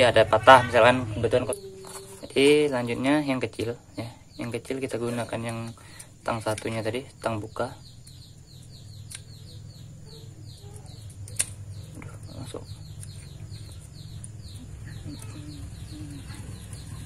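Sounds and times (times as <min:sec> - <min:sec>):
bird chirping: 0:00.0 - 0:17.0
low steady hum: 0:00.0 - 0:17.0
sharp metal click: 0:10.9 - 0:11.6.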